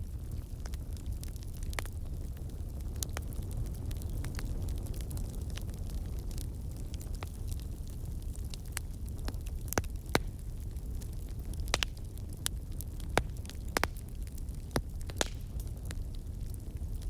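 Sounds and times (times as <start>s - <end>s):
wood fire crackling: 0.0s - 17.0s
sharp pops and snaps: 14.7s - 15.6s.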